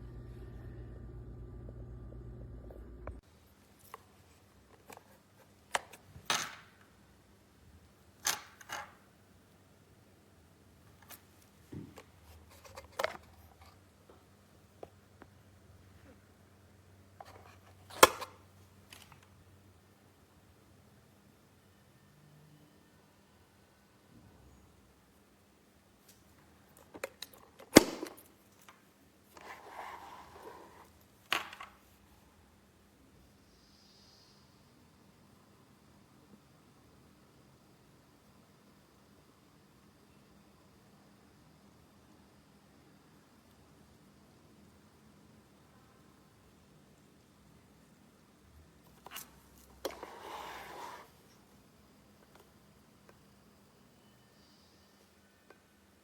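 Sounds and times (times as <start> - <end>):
soft scraping noise: 29.3 - 31.0, 49.0 - 51.4.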